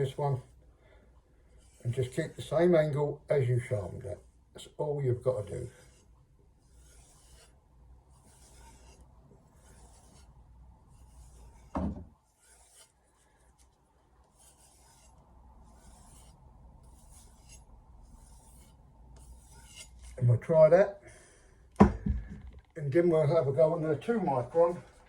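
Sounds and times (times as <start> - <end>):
thump: 11.7 - 12.1, 21.8 - 22.5
knife scraping on leather strop: 12.4 - 13.0, 18.2 - 20.2.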